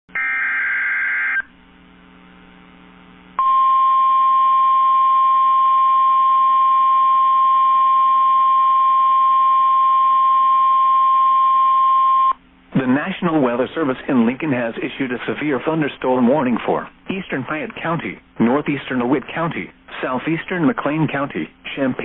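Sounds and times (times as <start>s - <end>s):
steady alarm tone: 0.1s - 1.5s
faint hum: 0.1s - 22.0s.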